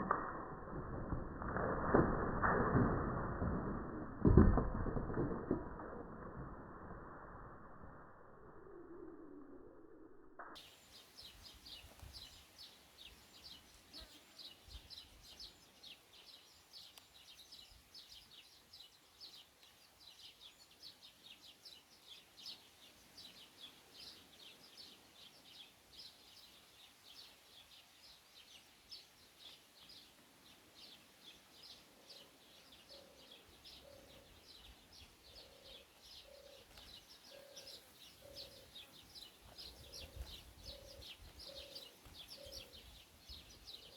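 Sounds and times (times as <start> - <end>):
songbirds chirping: 10.4 - 43.9.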